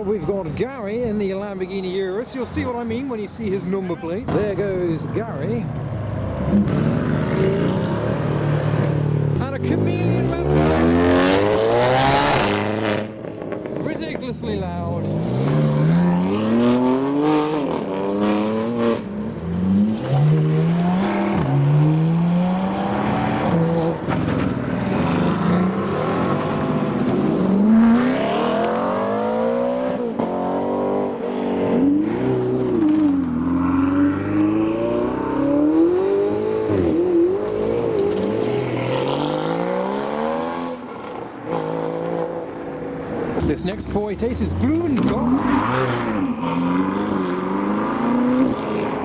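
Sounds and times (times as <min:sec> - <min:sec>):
supercar engines accelerating: 0:04.3 - 0:49.0.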